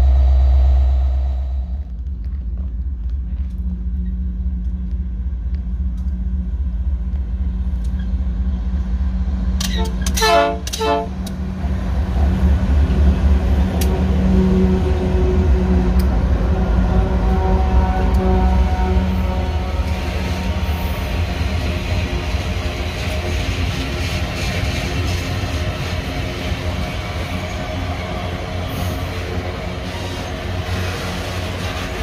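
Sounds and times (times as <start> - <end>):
freight train rumble: 0.0 - 32.0
locomotive horn blasts: 9.6 - 11.3, 16.4 - 21.3.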